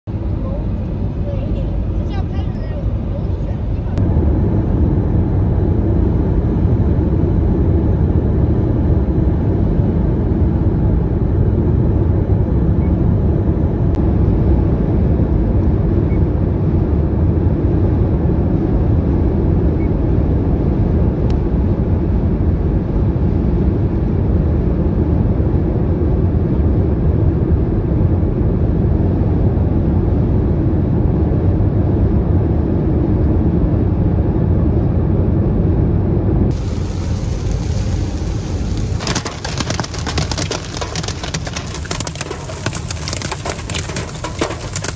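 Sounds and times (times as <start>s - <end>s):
hail and rain drumming on car: 36.5s - 44.9s.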